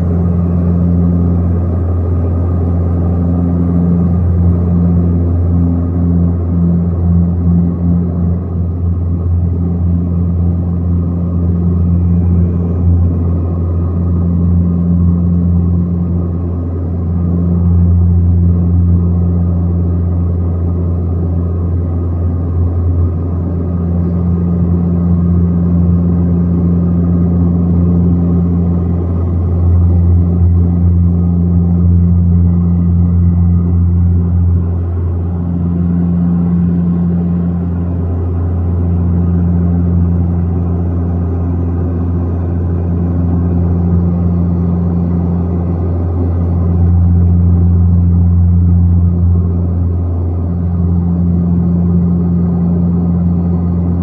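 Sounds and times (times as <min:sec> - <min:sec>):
aircraft engines droning: 0:00.0 - 0:54.0.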